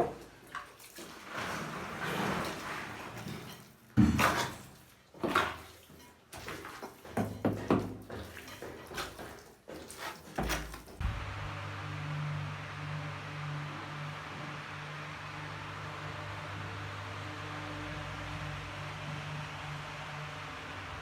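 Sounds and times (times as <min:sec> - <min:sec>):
steady low hum: 0:11.0 - 0:21.0.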